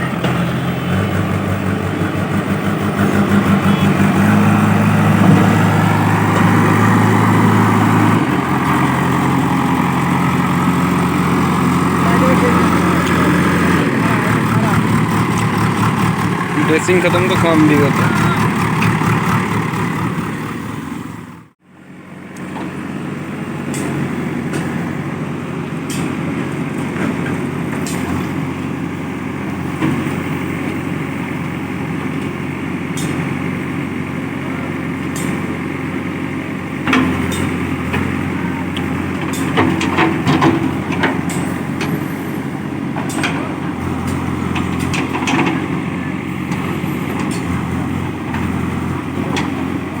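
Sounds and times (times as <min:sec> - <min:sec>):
diesel engine running: 0:00.0 - 0:50.0
metal clanks and knocks: 0:36.9 - 0:38.2, 0:39.1 - 0:42.0, 0:43.0 - 0:45.7.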